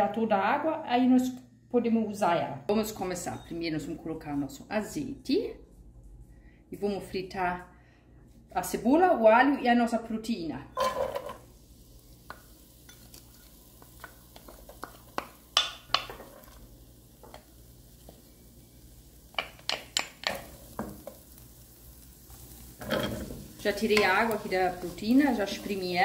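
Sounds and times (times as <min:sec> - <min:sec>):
onion frying in oil: 0:10.8 - 0:26.0
wooden spoon scraping a pan: 0:22.3 - 0:26.0.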